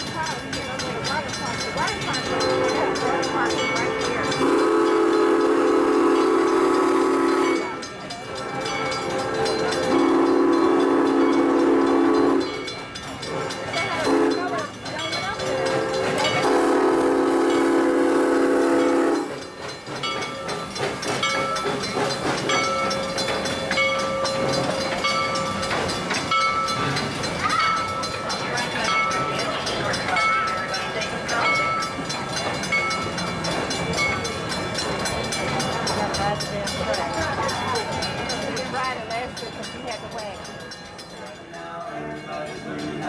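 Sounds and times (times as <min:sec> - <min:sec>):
train running past: 0:00.0 - 0:43.0
steam locomotive whistle blasts: 0:02.3 - 0:14.5, 0:15.4 - 0:19.5.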